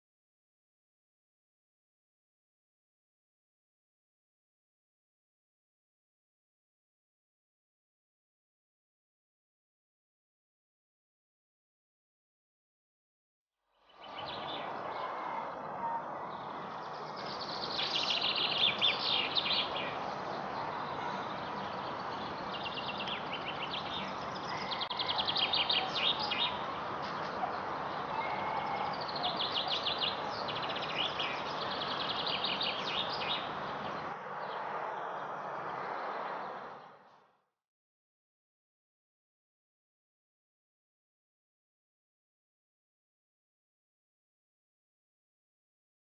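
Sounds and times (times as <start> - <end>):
songbird singing: 13.8 - 37.0.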